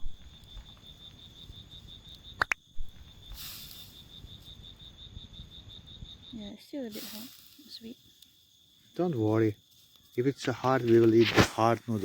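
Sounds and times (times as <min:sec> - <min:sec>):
cricket chirping: 0:00.0 - 0:12.0
sharp click: 0:02.4 - 0:02.6.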